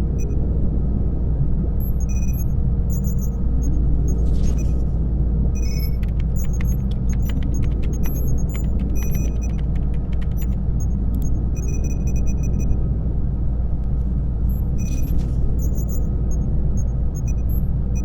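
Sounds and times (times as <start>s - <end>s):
high electronic bleeps: 1.8s - 3.4s, 5.6s - 10.6s, 14.5s - 18.0s
keyboard clacks: 5.7s - 11.3s.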